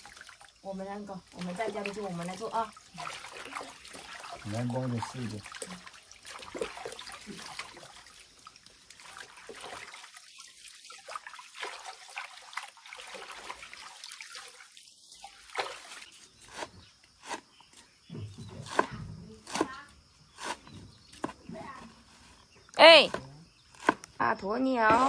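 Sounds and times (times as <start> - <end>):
water trickling and splashing: 0.0 - 19.7.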